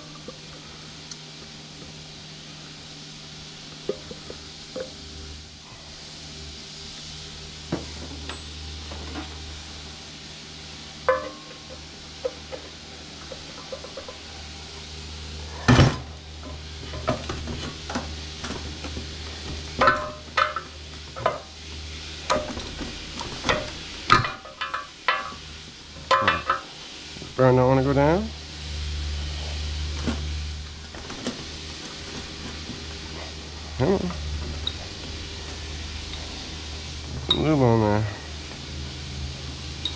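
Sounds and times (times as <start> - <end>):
steady low hum: 0.0 - 39.9
metal tools clanking on metal: 26.0 - 26.7.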